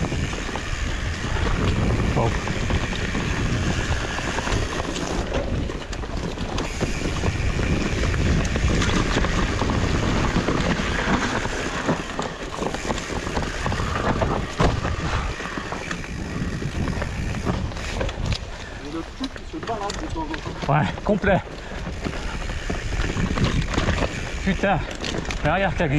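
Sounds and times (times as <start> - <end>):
bike knocks and rattles: 0.0 - 25.9
tyres rumbling on trail: 0.0 - 25.9
wind buffeting microphone: 0.0 - 25.9.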